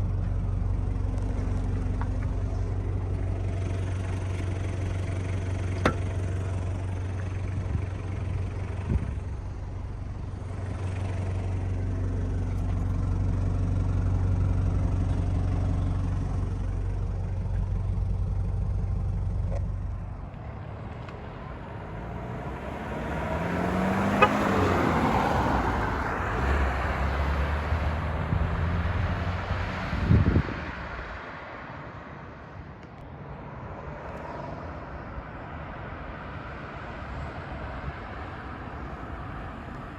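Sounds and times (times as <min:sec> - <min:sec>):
diesel engine idling: 0:00.0 - 0:27.0
vehicle passing by: 0:20.0 - 0:32.6.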